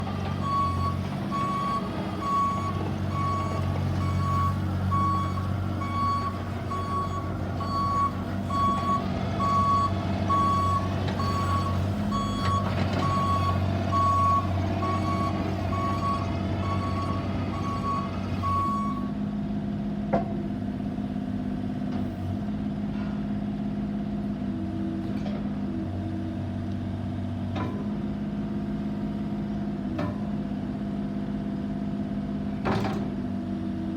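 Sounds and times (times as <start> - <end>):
excavator travel alarm beeping: 0.0 - 19.1
excavator engine hum: 0.0 - 33.9.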